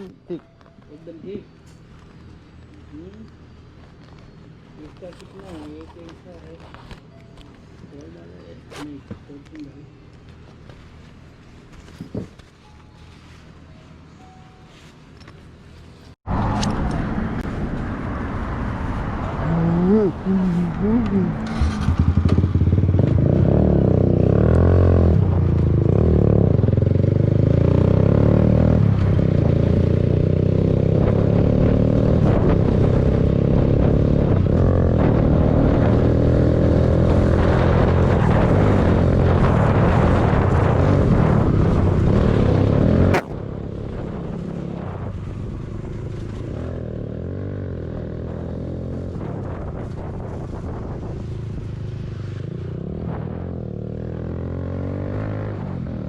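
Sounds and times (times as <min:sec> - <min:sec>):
motorcycle engine running: 0:19.8 - 0:38.2.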